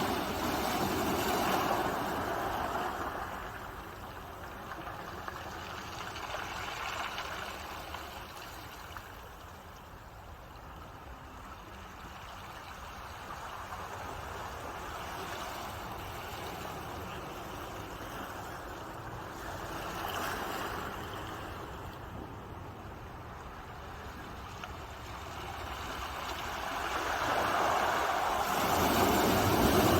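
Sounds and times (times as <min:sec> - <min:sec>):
ocean waves washing: 0:00.0 - 0:05.2, 0:14.2 - 0:29.9.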